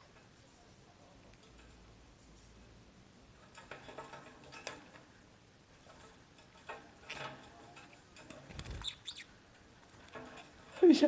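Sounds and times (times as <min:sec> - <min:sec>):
parakeet ticking and tapping: 0:01.2 - 0:02.0, 0:03.2 - 0:11.0.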